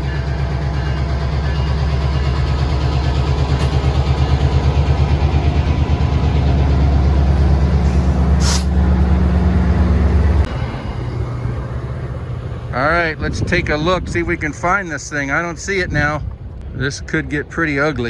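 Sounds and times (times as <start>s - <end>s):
diesel train engine throbbing: 0.0s - 18.0s
air hiss: 7.3s - 8.9s.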